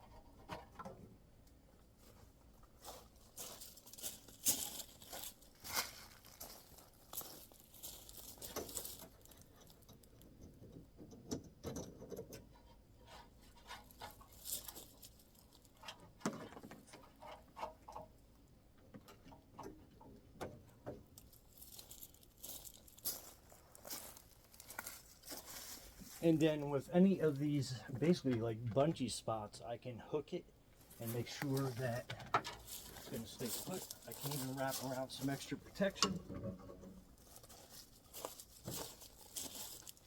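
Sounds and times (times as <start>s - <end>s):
net rustling and scraping: 32.6s - 35.2s, 37.1s - 40.0s.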